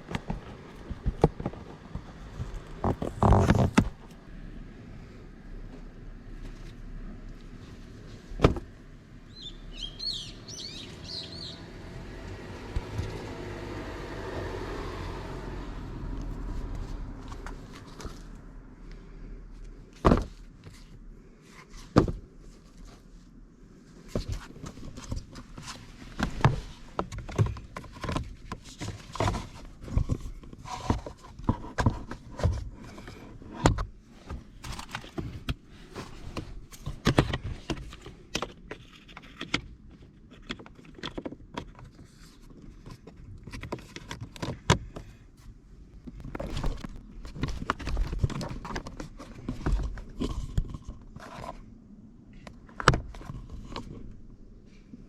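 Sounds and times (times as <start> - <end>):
parts clicking and knocking: 0.0 - 4.2, 24.1 - 45.2.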